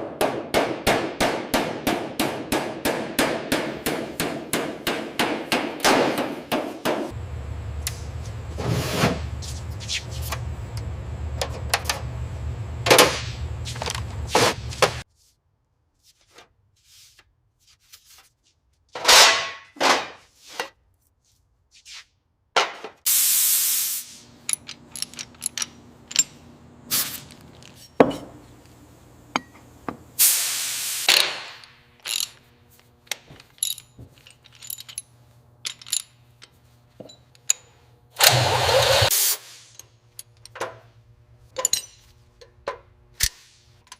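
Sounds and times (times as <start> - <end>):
steady low hum: 7.1 - 15.0
short hissing bursts: 23.1 - 24.3, 26.9 - 27.2, 30.2 - 31.1, 39.1 - 39.8.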